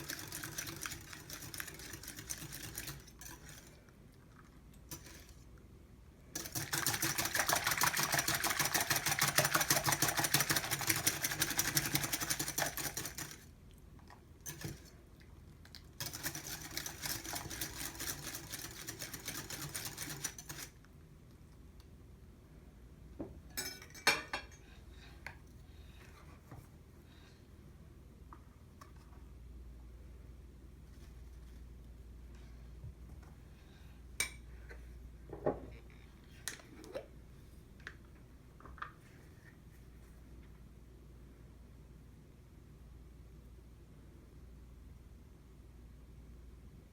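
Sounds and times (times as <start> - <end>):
whisk beating in a bowl: 0.0 - 3.8, 6.4 - 13.4, 16.0 - 20.7.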